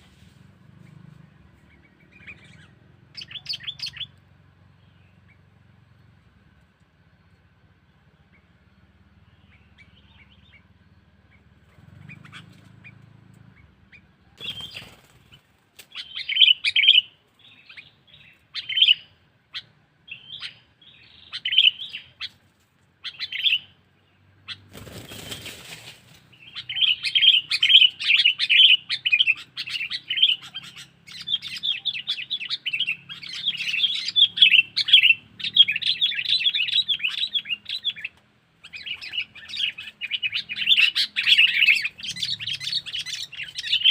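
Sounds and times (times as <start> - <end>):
bulbul chattering calls: 0.7 - 6.2, 7.1 - 22.4, 23.0 - 25.5, 26.1 - 43.9
rustling: 24.8 - 26.2.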